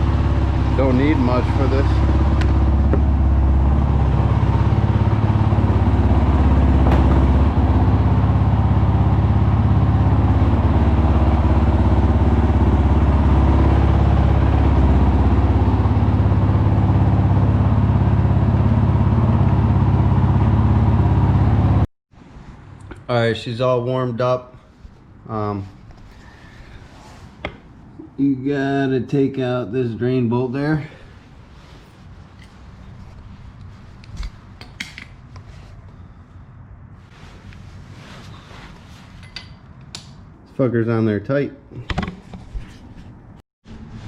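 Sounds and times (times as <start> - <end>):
motorcycle engine idling: 0.0 - 21.8.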